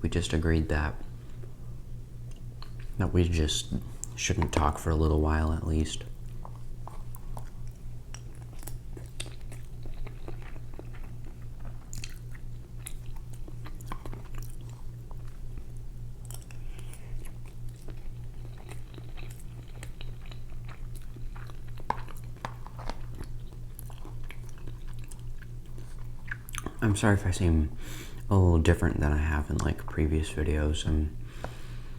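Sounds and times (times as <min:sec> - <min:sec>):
steady low hum: 0:00.0 - 0:31.9
wet chewing mouth smacks: 0:06.0 - 0:26.8.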